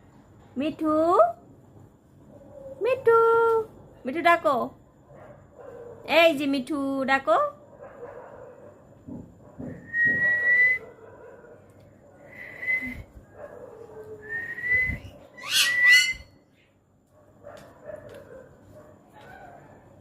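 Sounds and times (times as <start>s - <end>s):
parrot whistling: 14.3s - 16.3s
parrot sharply rising calls: 15.0s - 16.3s.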